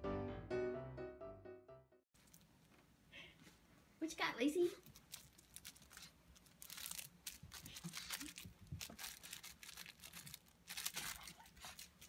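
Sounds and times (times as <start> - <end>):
dog chewing plush toy crinkling: 4.8 - 12.0.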